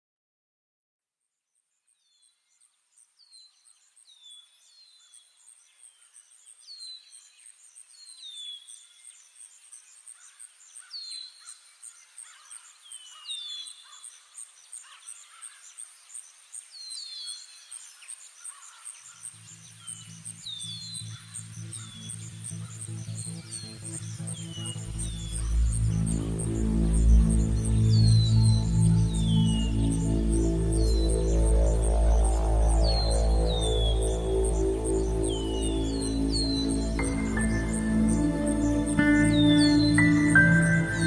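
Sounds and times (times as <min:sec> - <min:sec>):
bird chirping: 0:01.8 - 0:41.0
high insect-like pulse: 0:19.5 - 0:41.0
low bass music drone: 0:20.7 - 0:41.0.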